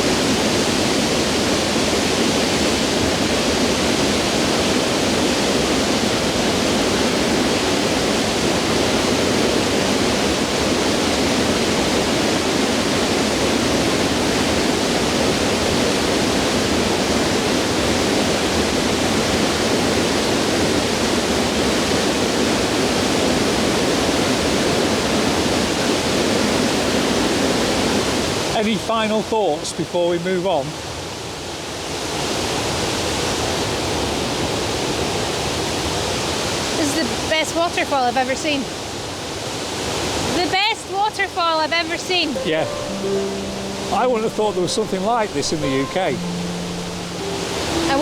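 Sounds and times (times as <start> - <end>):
loud waterfall roar: 42.1 - 48.0.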